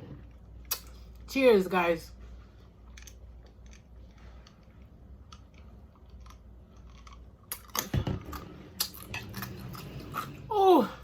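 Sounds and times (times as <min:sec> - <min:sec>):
wet mouth clicks: 0:00.6 - 0:01.0.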